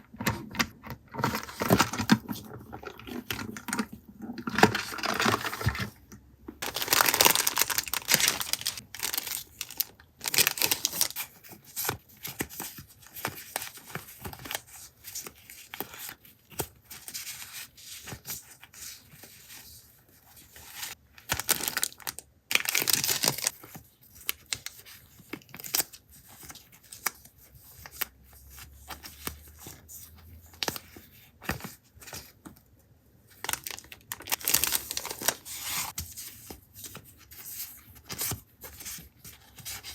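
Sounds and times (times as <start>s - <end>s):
paper tearing and crinkling: 6.6s - 11.2s.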